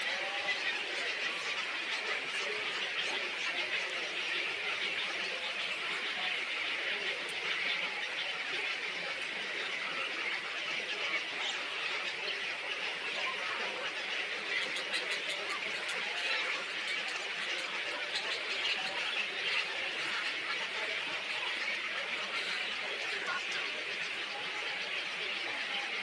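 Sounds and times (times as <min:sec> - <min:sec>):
flock of small birds chattering: 0:00.0 - 0:26.0.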